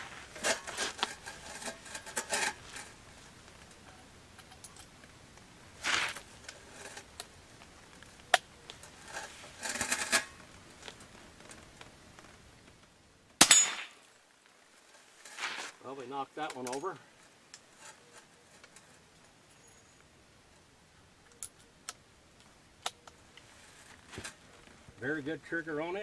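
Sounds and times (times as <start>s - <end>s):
handling rustles: 0.0s - 12.8s, 13.6s - 19.7s, 22.4s - 26.0s
rifle shot: 13.4s - 14.0s.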